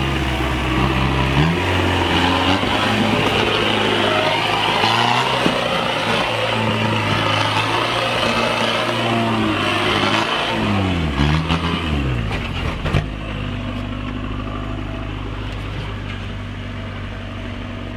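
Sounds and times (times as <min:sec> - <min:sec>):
diesel engine running: 0:00.0 - 0:17.9.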